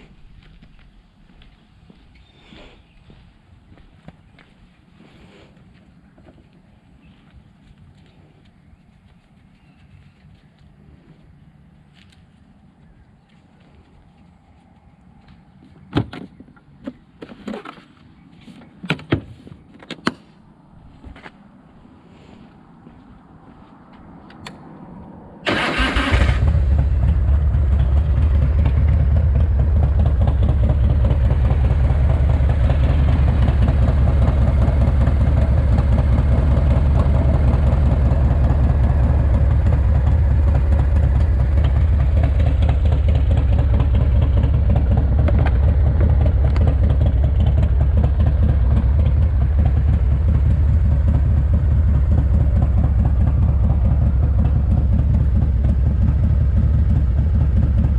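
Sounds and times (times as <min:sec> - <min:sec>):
motorcycle engine cranking: 0:25.5 - 0:26.7
motorcycle engine idling: 0:25.5 - 0:57.9.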